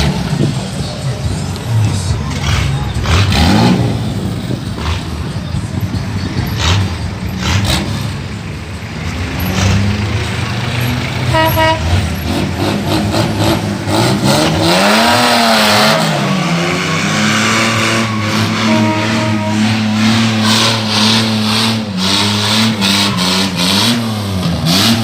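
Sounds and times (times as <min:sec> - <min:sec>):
truck engine revving: 0:00.0 - 0:25.0
short horn toots: 0:11.3 - 0:11.9, 0:18.0 - 0:20.3.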